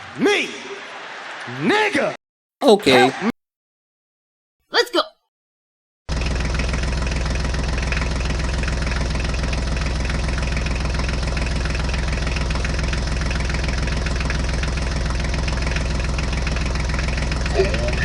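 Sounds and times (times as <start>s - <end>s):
tractor engine idling: 6.1s - 18.0s.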